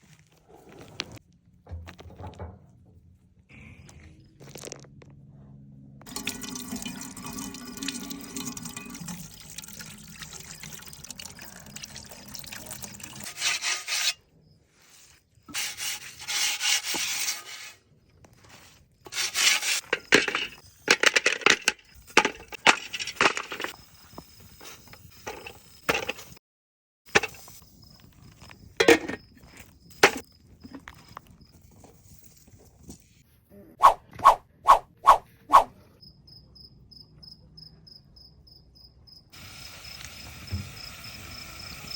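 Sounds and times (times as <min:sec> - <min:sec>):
sharp knocks and clatter: 0:01.6 - 0:03.0
water pouring and splashing: 0:06.1 - 0:13.8.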